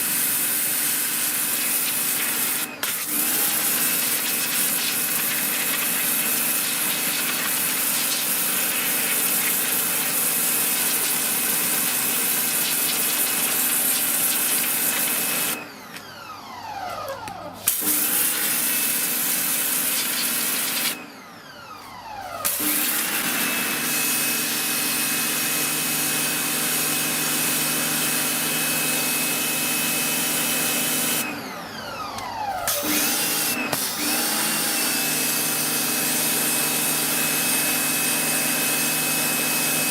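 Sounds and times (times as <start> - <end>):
electric pressure washer running: 0.0 - 39.9
water jet hissing: 1.0 - 15.6, 19.8 - 21.0.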